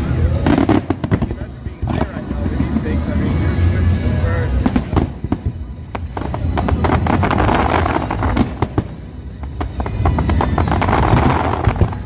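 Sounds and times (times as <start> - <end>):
low rumble: 0.0 - 12.0
fireworks crackling pops: 0.4 - 2.8, 9.5 - 12.0.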